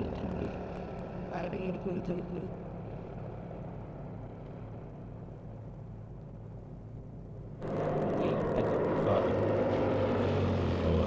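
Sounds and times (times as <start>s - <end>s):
propeller aircraft engine: 0.0s - 11.0s.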